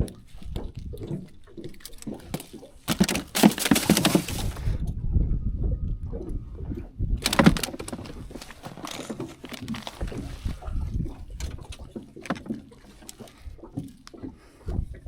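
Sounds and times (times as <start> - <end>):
water sloshing against hull: 0.0 - 15.0
bumps and clicks: 6.0 - 15.0.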